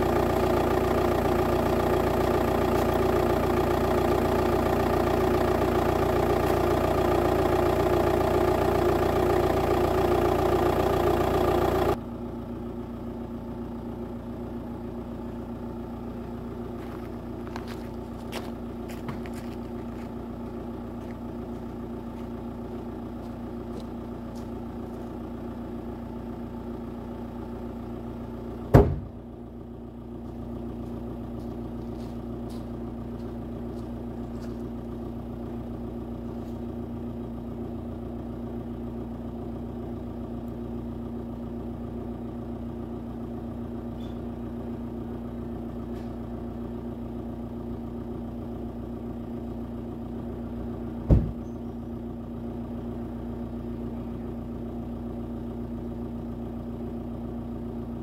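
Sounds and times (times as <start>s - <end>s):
diesel engine idling: 0.0s - 58.0s
loud thumps: 28.7s - 29.2s, 51.0s - 51.4s.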